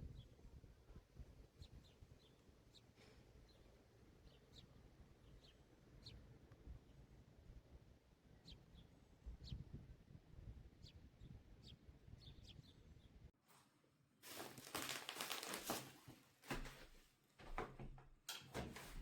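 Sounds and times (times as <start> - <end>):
rustling and crinkling handling: 13.5 - 19.0.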